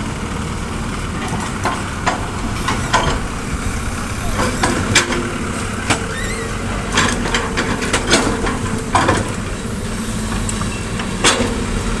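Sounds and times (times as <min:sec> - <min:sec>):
excavator diesel engine running: 0:00.0 - 0:12.0
metal knocks and clanks: 0:01.2 - 0:06.1.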